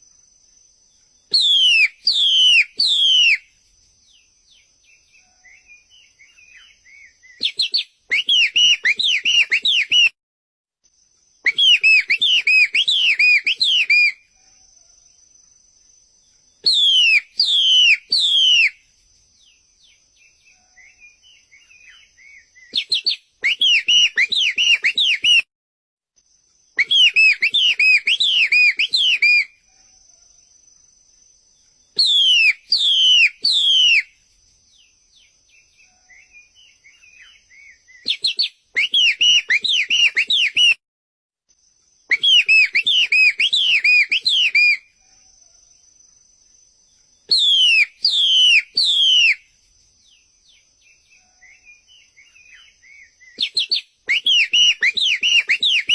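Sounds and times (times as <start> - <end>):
soft chirps: 0.0 - 10.2, 41.6 - 55.9
bird whistling song: 1.3 - 3.5, 4.1 - 10.2, 11.4 - 14.2, 16.6 - 18.8, 19.4 - 25.5, 26.8 - 29.6, 31.9 - 34.2, 34.8 - 40.8, 42.1 - 44.9, 47.2 - 49.5, 50.1 - 55.9.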